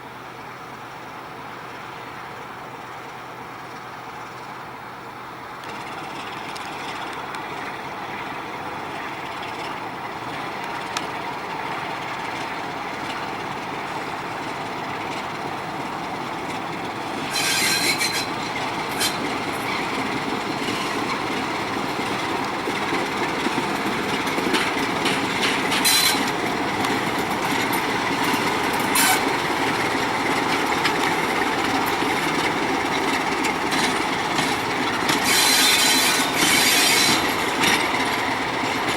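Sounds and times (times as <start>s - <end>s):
freight train wheels rumbling: 0.0s - 38.9s
high-pitched wheel squeals: 17.2s - 20.0s, 25.4s - 26.4s, 27.8s - 29.5s, 34.9s - 38.0s.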